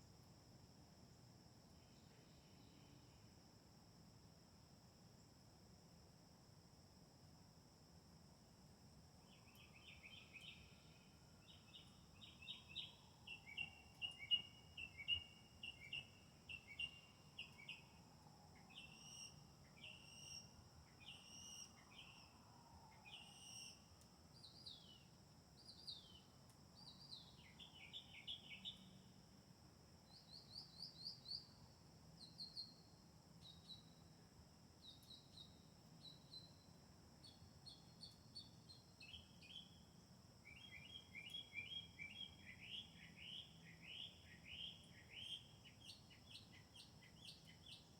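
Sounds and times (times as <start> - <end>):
songbirds singing: 9.3 - 18.0, 18.6 - 22.3, 24.4 - 29.0, 37.2 - 47.9.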